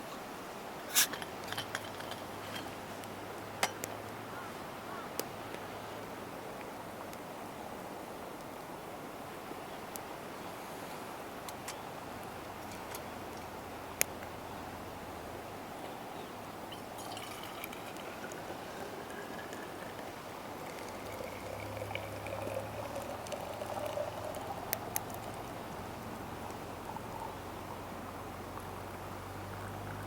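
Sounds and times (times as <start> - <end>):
steady hiss: 0.0 - 30.0
liquid pouring into container: 16.7 - 27.2.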